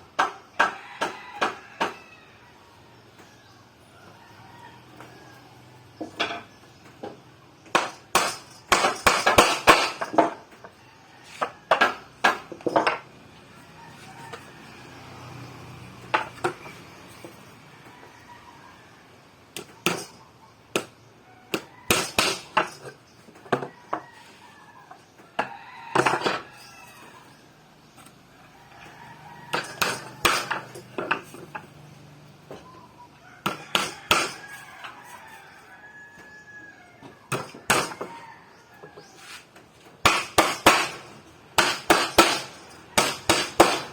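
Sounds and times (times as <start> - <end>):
wood and tools knocking: 0.1 - 2.0, 6.0 - 13.2, 16.0 - 17.4, 19.6 - 24.2, 24.9 - 26.6, 29.5 - 31.8, 33.4 - 35.0, 37.0 - 38.2, 38.8 - 43.9
rooster crowing: 0.5 - 5.9, 10.6 - 12.2, 13.3 - 19.3, 23.5 - 27.7, 28.3 - 31.7, 32.7 - 39.5.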